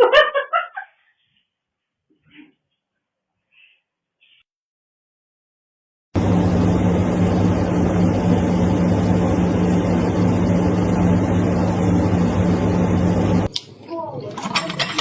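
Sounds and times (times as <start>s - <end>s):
loud machine drone: 6.2s - 13.5s.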